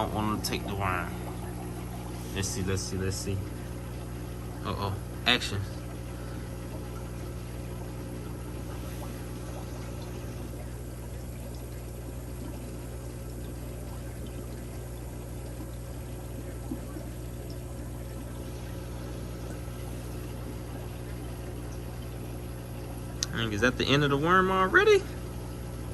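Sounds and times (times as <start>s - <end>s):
low electrical hum: 0.0s - 25.9s
water pouring and trickling: 0.0s - 25.9s.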